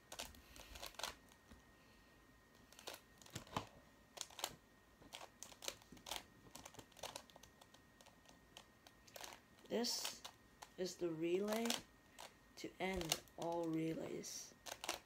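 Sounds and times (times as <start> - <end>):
plastic puzzle clicking: 11.5 - 12.3, 14.6 - 15.0.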